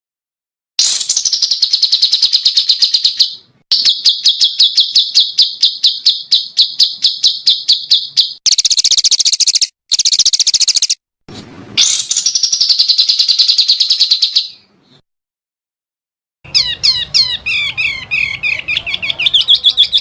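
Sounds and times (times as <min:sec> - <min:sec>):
songbird rapid trill: 0:00.8 - 0:11.0, 0:11.8 - 0:14.6.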